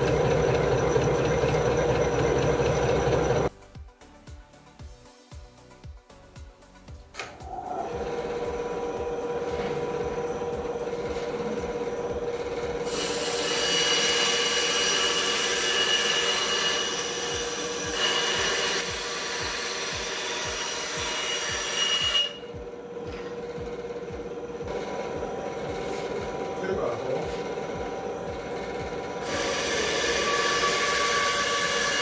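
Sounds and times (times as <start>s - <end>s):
band saw motor humming: 0.0s - 3.5s, 7.5s - 32.0s
saw blade cutting wood: 7.9s - 23.7s, 28.6s - 32.0s.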